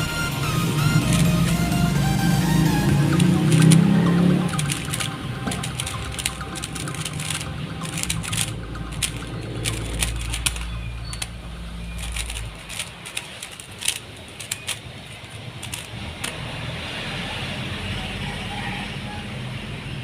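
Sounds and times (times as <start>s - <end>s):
plastic clicks of speed cube: 0.8s - 1.8s, 2.6s - 16.5s.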